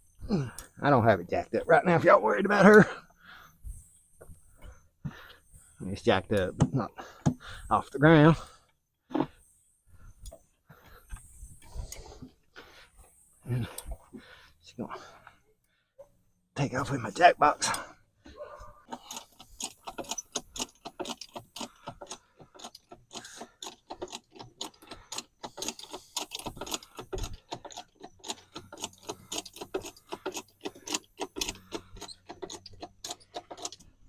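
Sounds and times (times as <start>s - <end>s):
metallic clicking of tools: 18.9s - 34.0s.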